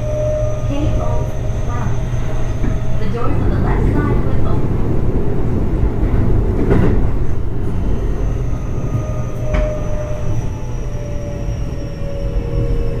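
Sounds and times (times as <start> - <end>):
high inverter whine: 0.0 - 13.0
train wheel and track rumble: 0.0 - 13.0
track knocks: 2.2 - 10.4.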